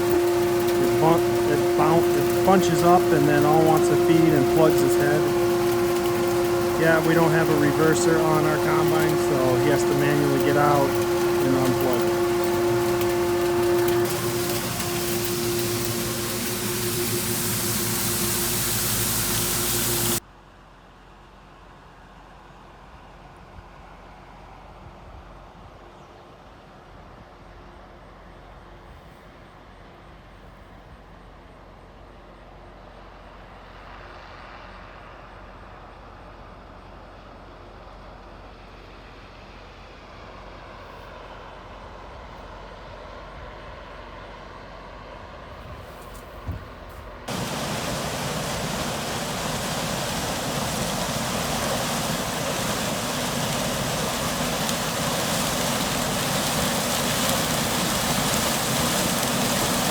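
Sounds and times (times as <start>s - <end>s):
harvest machinery running: 0.0s - 20.2s, 45.8s - 59.9s
loud even rushing noise: 47.3s - 59.9s.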